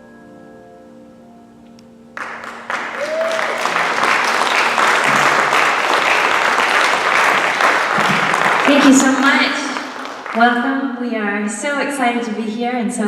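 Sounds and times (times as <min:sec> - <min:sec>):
piano chord ringing: 0:00.0 - 0:06.1
audience applause: 0:02.2 - 0:10.6.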